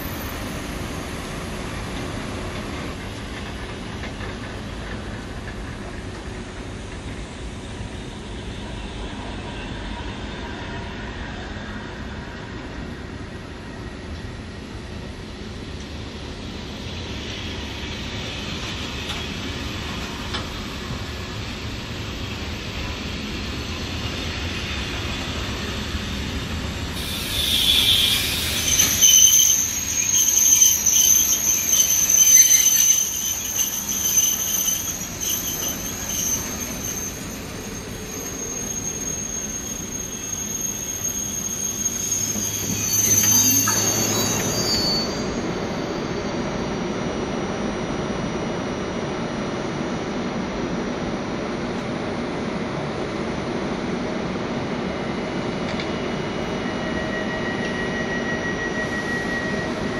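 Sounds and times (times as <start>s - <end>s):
train wheels rumbling on track: 0.0s - 49.4s, 51.0s - 59.9s
high-pitched wheel squeal: 27.0s - 46.3s, 56.6s - 59.9s.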